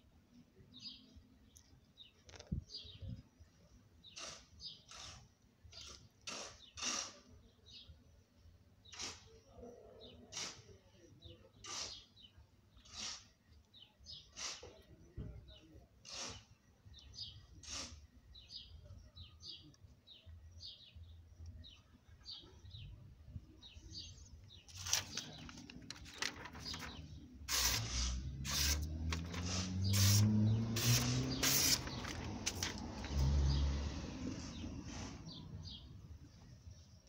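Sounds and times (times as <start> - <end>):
bird chirping: 18.3 - 37.0
engine rising in pitch: 27.5 - 35.2.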